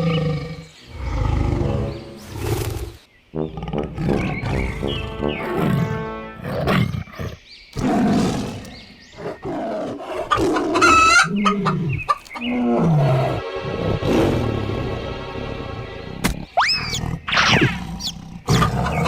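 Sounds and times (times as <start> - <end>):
tiger growling: 0.0 - 15.7, 16.4 - 19.0
chickens squawking and clucking: 10.2 - 12.5.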